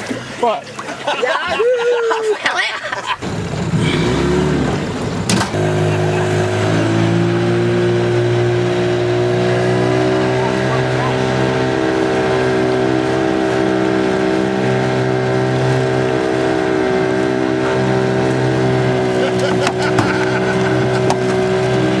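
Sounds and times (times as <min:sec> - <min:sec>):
car engine running: 0:03.1 - 0:22.0.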